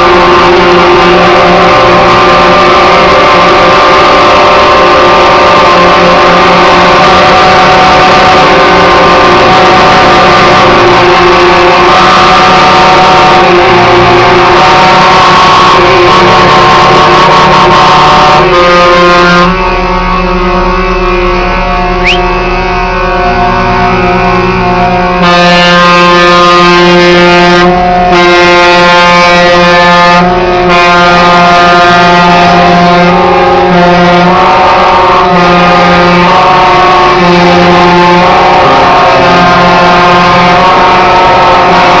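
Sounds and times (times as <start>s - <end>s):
truck air horns: 0.0s - 42.0s.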